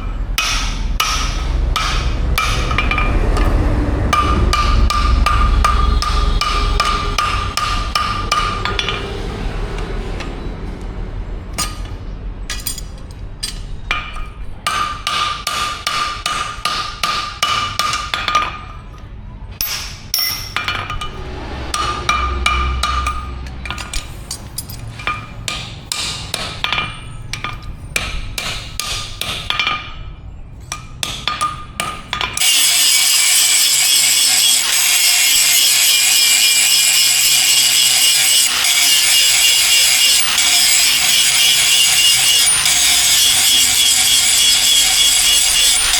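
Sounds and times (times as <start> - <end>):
hammer striking steel: 0.0 - 10.4, 11.5 - 45.9
harsh high-pitched noise: 32.4 - 45.9.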